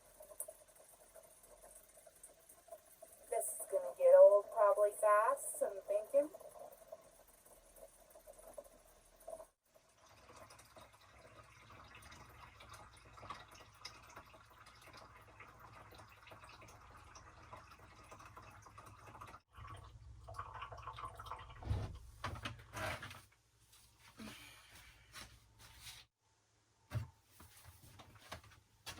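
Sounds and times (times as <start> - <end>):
water pouring into a tank: 0.0 - 22.4.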